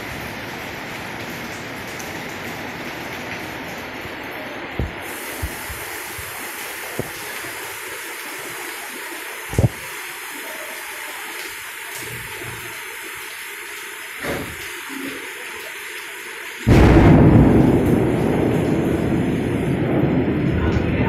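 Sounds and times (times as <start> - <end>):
heavy rain falling: 0.0 - 21.0
low thumps: 4.8 - 6.3, 9.5 - 9.8, 16.7 - 21.0.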